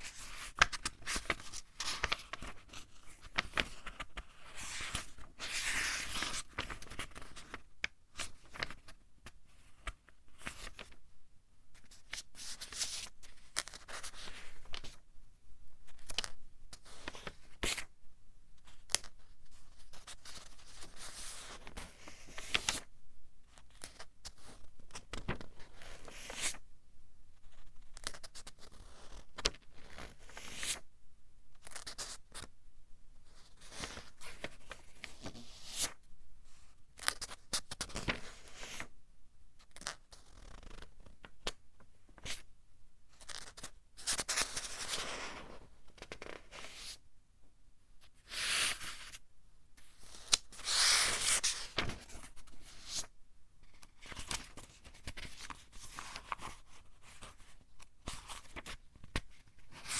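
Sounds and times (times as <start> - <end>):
book pages turning: 50.0 - 53.1, 53.8 - 57.4.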